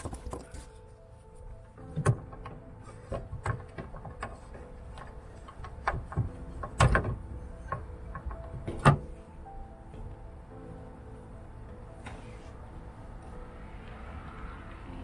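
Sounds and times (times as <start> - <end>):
parts clicking and knocking: 0.0 - 0.8, 1.8 - 9.2.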